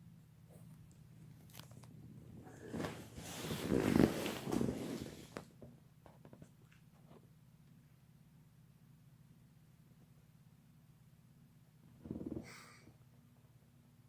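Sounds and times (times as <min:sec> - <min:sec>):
rustling scuffling noise: 0:02.4 - 0:05.6.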